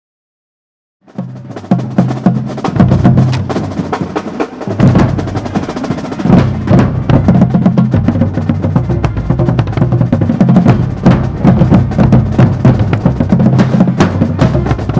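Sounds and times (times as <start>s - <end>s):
snare drums rapid strokes: 1.1s - 6.8s
marching drumline cadence: 1.1s - 14.9s
bass drums low notes: 1.7s - 3.8s, 4.8s - 5.7s, 6.3s - 14.9s.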